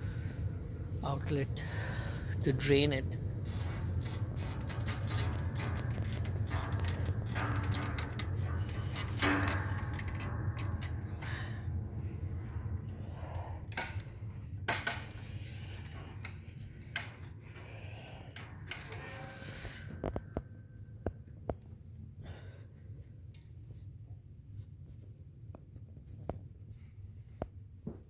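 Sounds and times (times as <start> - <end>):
low steady hum: 0.0 - 27.8
handling clicks and knocks: 3.9 - 11.6.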